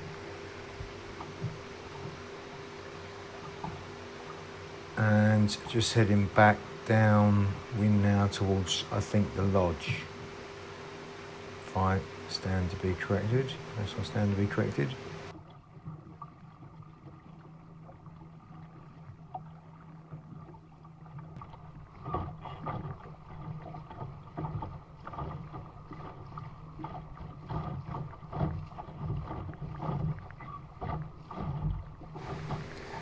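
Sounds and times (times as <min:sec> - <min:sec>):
low hum: 0:00.0 - 0:15.4
water splashing against hull: 0:00.0 - 0:33.0.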